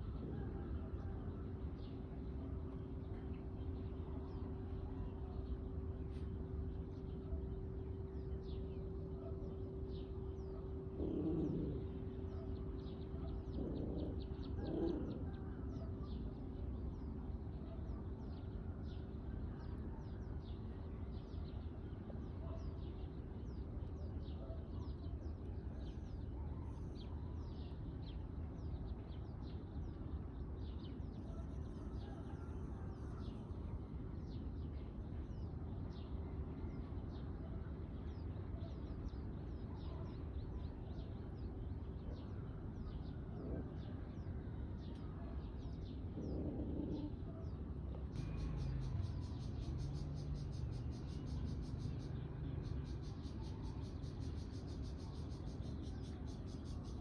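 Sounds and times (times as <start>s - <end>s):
small birds chirping: 1.3s - 57.0s
steady low rumble: 23.0s - 57.0s.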